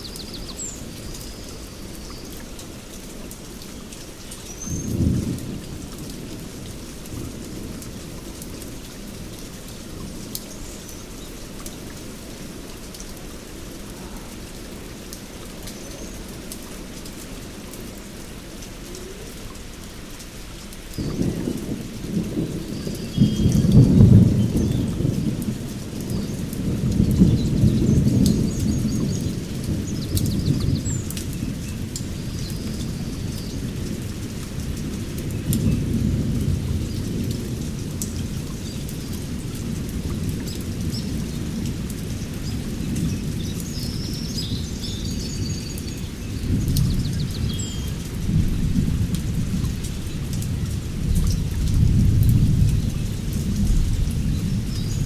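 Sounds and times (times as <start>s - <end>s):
heavy rain: 0.0s - 55.0s
thunder rumbling: 21.0s - 43.4s, 46.3s - 55.0s.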